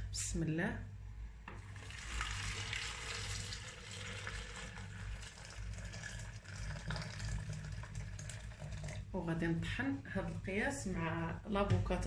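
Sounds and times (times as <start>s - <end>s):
juice pouring into blender jar: 1.6s - 9.2s.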